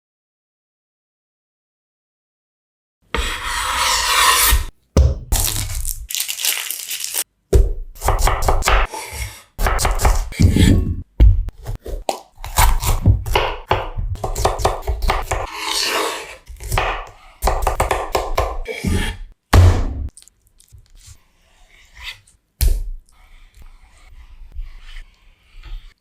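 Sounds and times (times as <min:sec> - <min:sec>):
food chopping on cutting board: 0:08.0 - 0:10.7, 0:12.4 - 0:15.5, 0:16.5 - 0:19.7.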